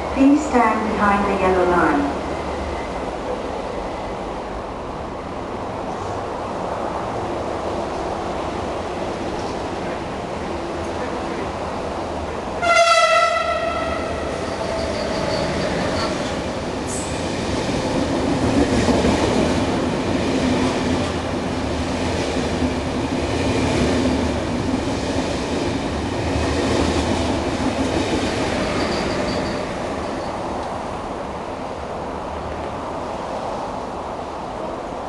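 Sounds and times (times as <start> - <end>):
train wheels rumbling and clattering: 13.3 - 33.9.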